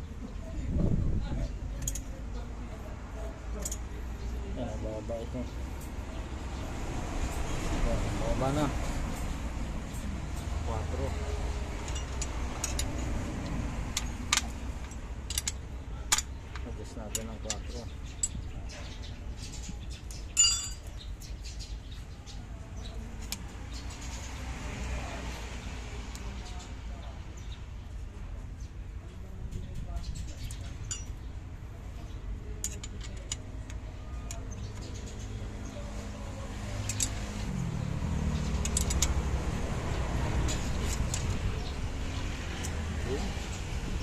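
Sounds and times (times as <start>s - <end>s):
engine hum: 0.0s - 19.0s, 22.7s - 44.0s
hand tools clicking on metal: 11.8s - 18.4s, 36.8s - 37.2s, 38.4s - 39.3s
sharp ringing metal clink: 20.4s - 20.9s.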